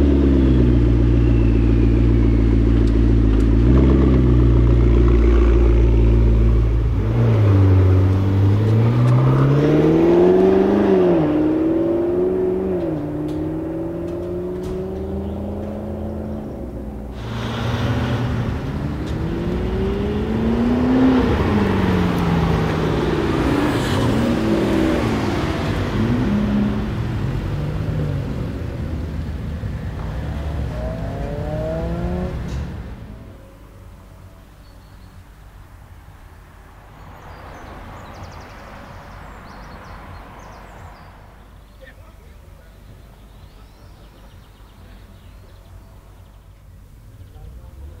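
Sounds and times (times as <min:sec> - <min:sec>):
car accelerating past: 0:00.0 - 0:33.4
car engine revving: 0:00.0 - 0:33.4.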